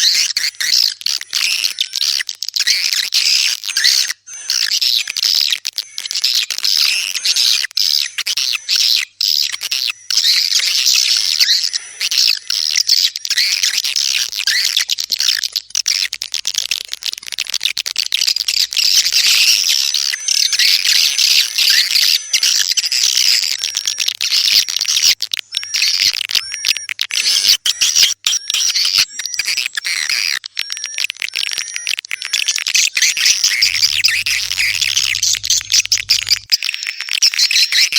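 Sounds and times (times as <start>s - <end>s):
swiftlets twittering chatter: 0.0s - 37.9s
hooked chirps: 12.4s - 22.2s, 32.6s - 36.5s.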